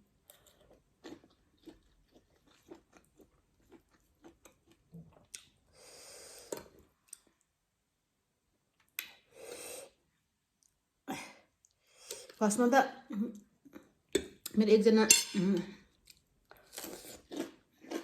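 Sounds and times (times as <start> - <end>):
person chewing: 0.2 - 5.8, 15.9 - 18.0.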